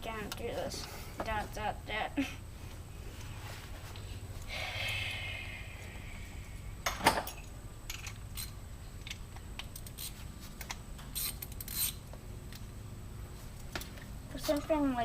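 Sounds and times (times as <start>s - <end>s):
metal tools clinking: 7.0s - 10.2s.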